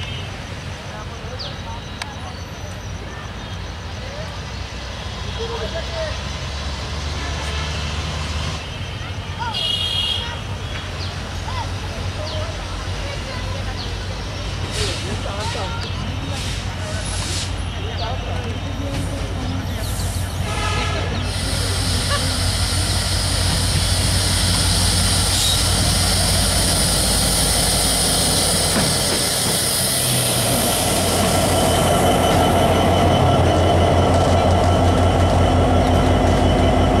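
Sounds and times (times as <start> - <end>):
coaches rolling on rails: 0.0 - 37.0
locomotive engine throbbing: 18.2 - 37.0
train horn: 20.4 - 21.3.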